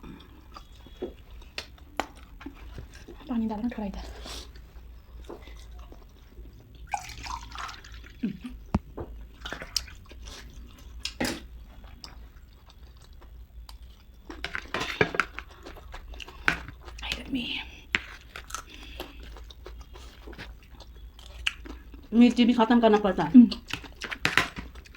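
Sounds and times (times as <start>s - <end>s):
water pouring into a glass: 6.9s - 8.2s.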